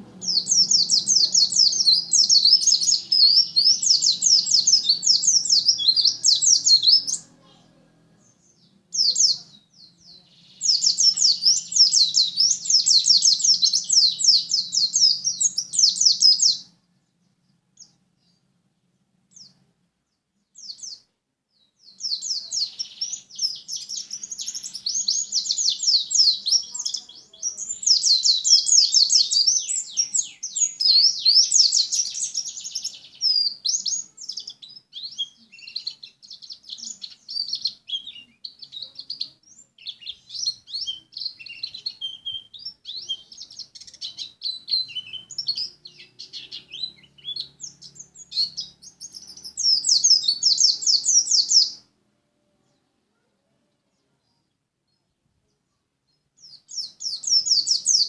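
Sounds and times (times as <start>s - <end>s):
bird singing high chirping notes: 0.0s - 7.5s, 8.2s - 16.7s, 21.8s - 51.9s, 56.4s - 58.0s.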